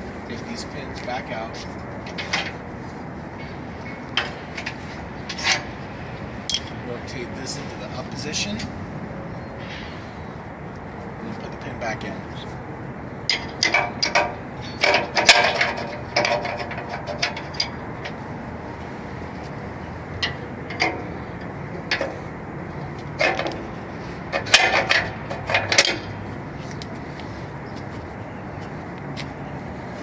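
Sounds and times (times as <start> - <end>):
metal clanks and rattles: 2.0 - 2.6, 3.4 - 6.8, 13.3 - 18.2, 20.2 - 22.3, 22.9 - 26.2.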